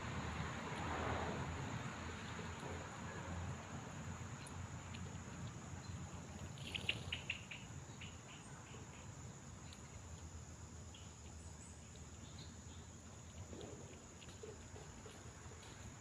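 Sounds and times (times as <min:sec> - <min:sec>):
small animal chirping: 0:06.6 - 0:08.4.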